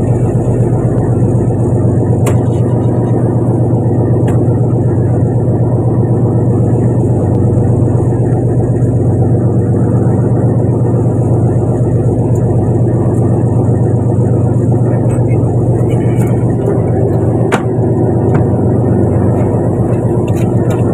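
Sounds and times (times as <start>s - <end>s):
boat engine droning: 0.0s - 20.9s.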